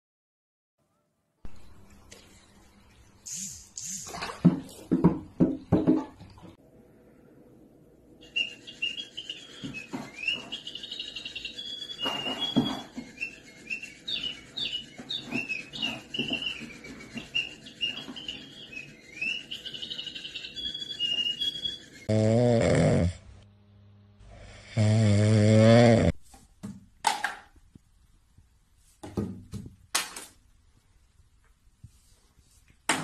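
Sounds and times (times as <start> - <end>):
small bird chirping: 1.5 - 4.0, 8.2 - 22.1.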